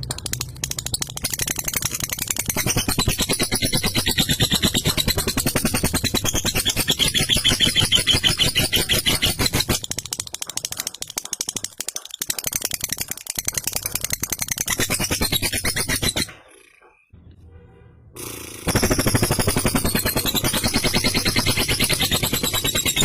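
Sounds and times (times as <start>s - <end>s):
lovebird rattling chatter: 0.0s - 17.1s, 18.6s - 23.0s.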